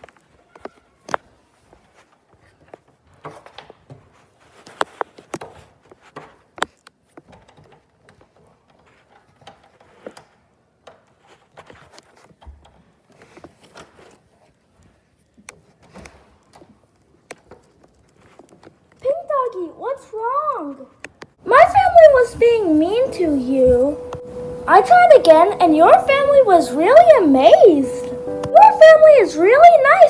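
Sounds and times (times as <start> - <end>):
doorknob and latch clicking: 7.2 - 11.2.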